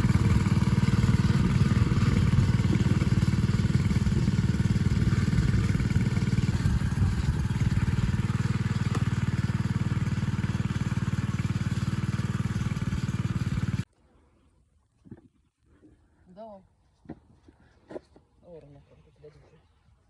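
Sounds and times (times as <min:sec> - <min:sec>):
motor engine running: 0:00.0 - 0:13.9.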